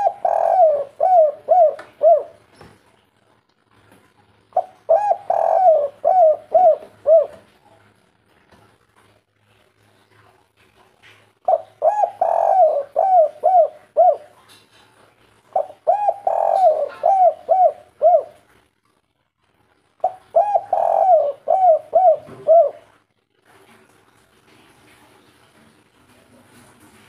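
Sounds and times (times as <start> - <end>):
dove cooing: 0.0 - 2.5, 4.6 - 7.6, 11.4 - 14.5, 15.5 - 18.5, 20.0 - 23.0.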